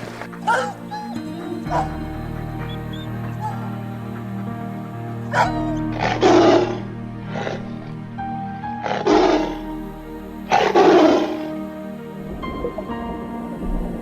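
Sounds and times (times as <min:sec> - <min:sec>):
background music: 0:00.0 - 0:14.0
big cat roaring: 0:05.3 - 0:07.7, 0:08.8 - 0:09.6.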